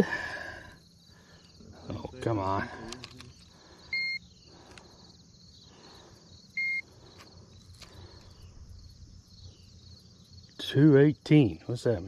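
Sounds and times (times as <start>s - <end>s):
faint insect chirring: 0.0s - 12.0s
digital scale beeps: 3.9s - 4.2s, 6.6s - 6.8s.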